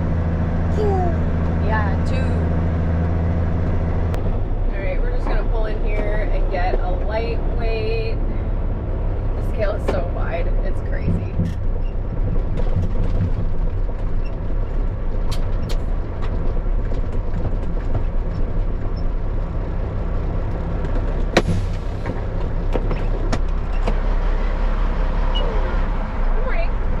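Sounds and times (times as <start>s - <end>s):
diesel engine running low: 0.0s - 27.0s.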